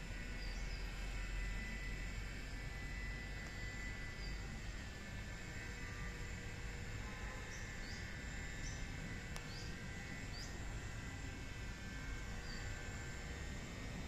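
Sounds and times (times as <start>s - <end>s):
small bird chirping: 0.3s - 0.9s, 7.5s - 10.6s.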